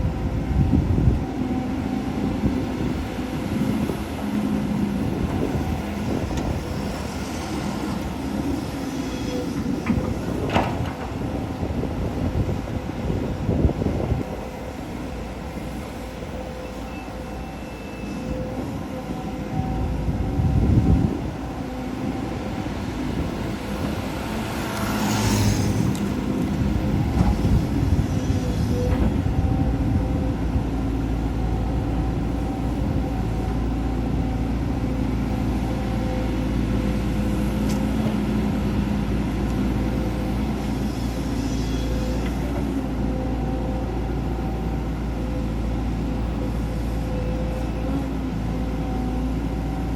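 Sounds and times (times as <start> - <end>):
hydraulic whine: 3.6 - 33.5, 40.4 - 49.9
diesel engine running: 19.0 - 49.9.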